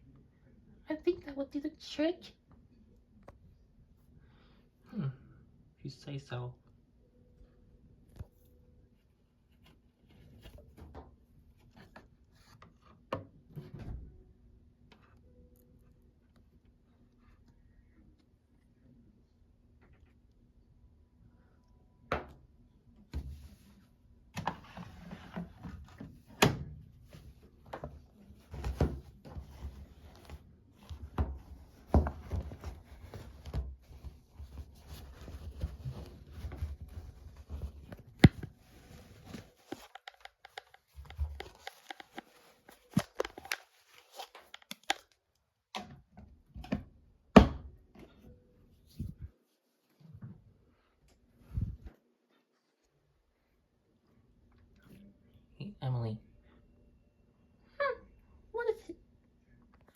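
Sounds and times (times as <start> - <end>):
laundry rustling: 24.4 - 44.5.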